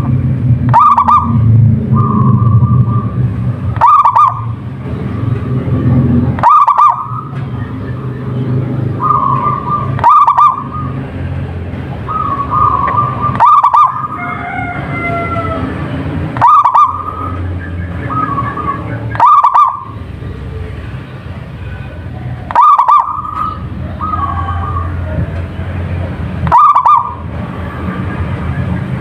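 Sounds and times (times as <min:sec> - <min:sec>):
steady low hum: 0:00.0 - 0:29.0
dove cooing song: 0:00.7 - 0:04.6, 0:06.4 - 0:08.3, 0:08.9 - 0:11.1, 0:12.0 - 0:15.8, 0:16.4 - 0:20.8, 0:21.6 - 0:25.5, 0:26.4 - 0:27.3.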